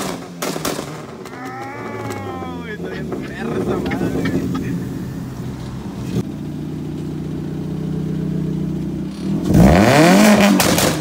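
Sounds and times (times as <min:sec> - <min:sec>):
car engine idling and revving: 0:00.0 - 0:11.0
exhaust pops: 0:10.2 - 0:11.0.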